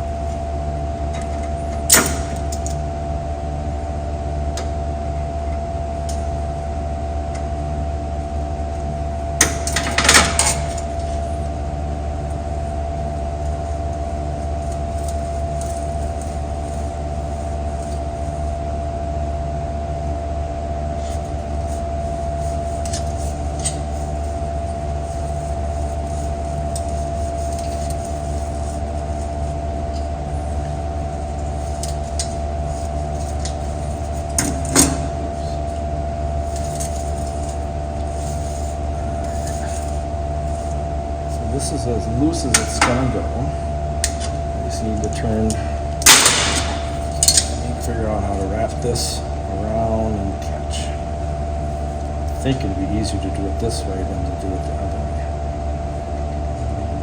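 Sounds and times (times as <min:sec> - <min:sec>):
faint steady whine: 0:00.0 - 0:57.0
steady low hum: 0:00.0 - 0:57.0
sharp metal click: 0:46.0 - 0:47.6.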